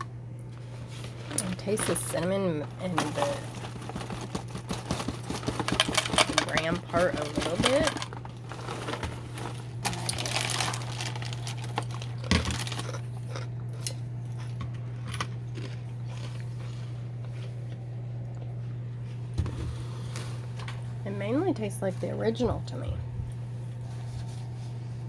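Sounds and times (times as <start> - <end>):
steady low hum: 0.0 - 25.0
cereal crunching: 1.0 - 17.8.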